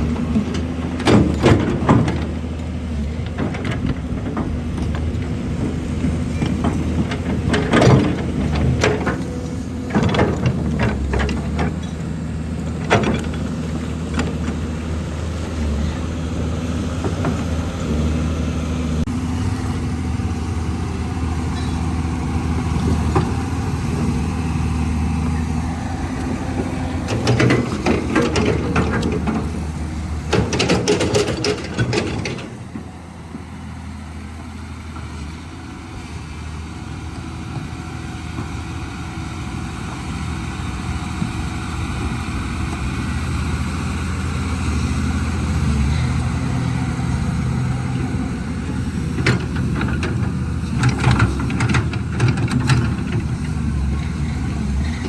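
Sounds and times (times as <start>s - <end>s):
excavator diesel engine: 0.0s - 55.0s
clattering knocks: 26.3s - 32.6s.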